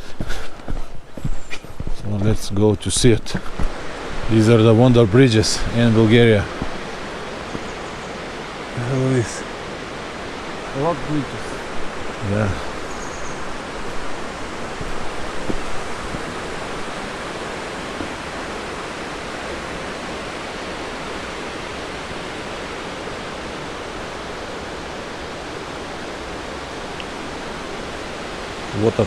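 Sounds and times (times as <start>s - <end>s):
flowing water rushing: 0.0s - 29.0s.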